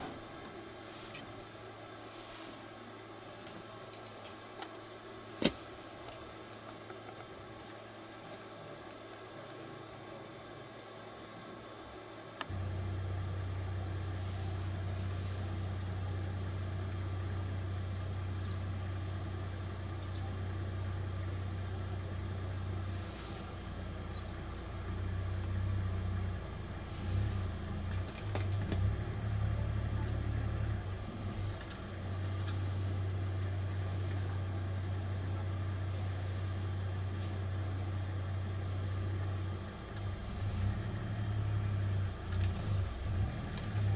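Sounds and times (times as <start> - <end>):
vehicle engine idling: 12.4 - 43.9.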